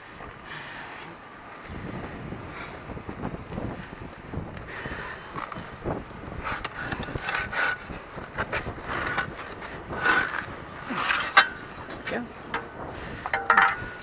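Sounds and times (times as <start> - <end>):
wind noise on microphone: 0.0 - 14.0
scrap metal clanks and scrapes: 10.0 - 14.0.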